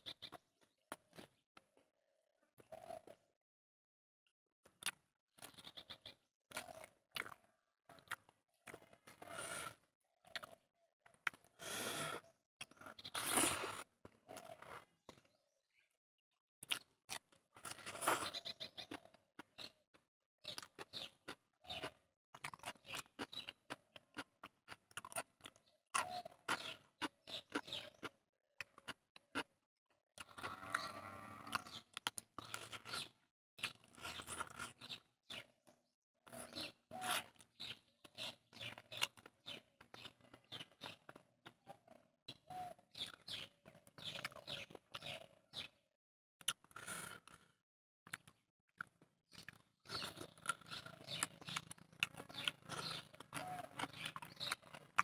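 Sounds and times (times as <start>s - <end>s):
close chewing mouth clicks: 6.5s - 11.6s, 16.6s - 19.8s, 20.5s - 29.5s, 30.2s - 35.5s, 36.3s - 41.8s, 43.0s - 45.3s, 46.4s - 47.5s, 48.1s - 55.0s.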